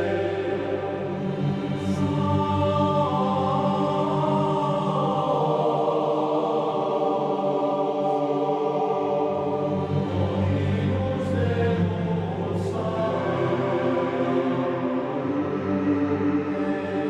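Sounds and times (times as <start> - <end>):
choir-like voices holding chords: 0.0 - 17.0.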